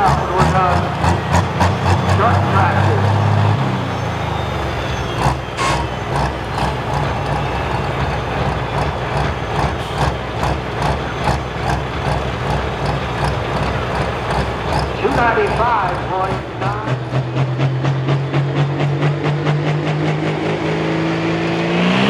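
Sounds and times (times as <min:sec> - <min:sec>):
heavy diesel engine knocking: 0:00.0 - 0:21.6.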